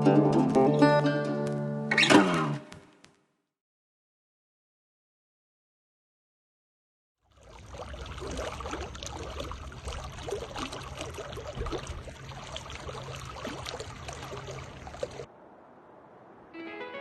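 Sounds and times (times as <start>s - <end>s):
water trickling and splashing: 7.2s - 16.6s.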